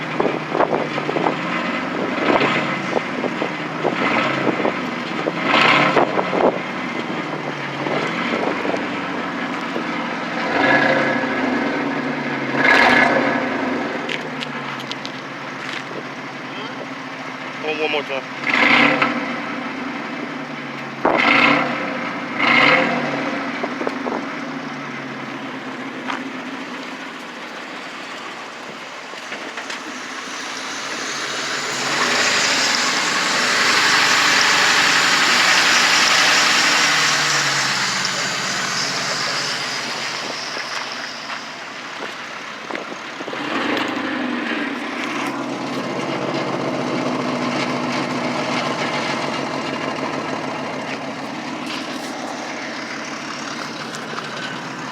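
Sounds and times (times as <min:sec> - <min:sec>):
car engine revving and idling: 0:00.0 - 0:54.9
broad rushing noise: 0:25.5 - 0:43.7.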